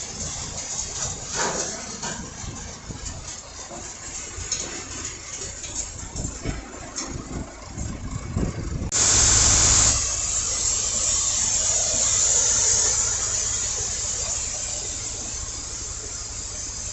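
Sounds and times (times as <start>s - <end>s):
machinery humming: 0.0s - 16.9s
loud rushing hiss: 8.9s - 16.9s.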